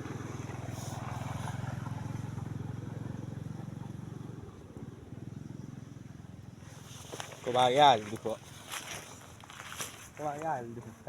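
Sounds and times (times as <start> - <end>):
small engine running: 0.0 - 10.2.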